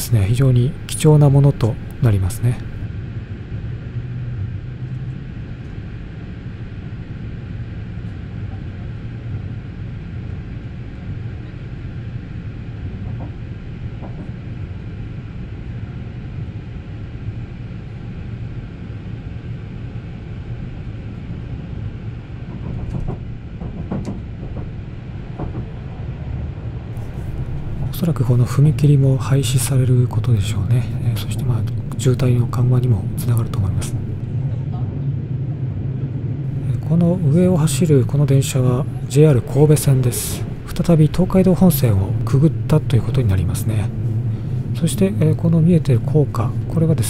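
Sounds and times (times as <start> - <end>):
train wheels rumbling on rail: 0.0 - 6.9, 7.8 - 47.0.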